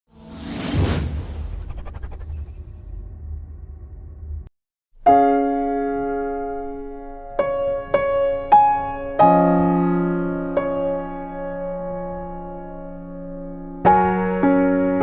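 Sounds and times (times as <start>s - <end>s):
low rumble: 0.3s - 4.5s
soft slow piano music: 5.0s - 15.0s.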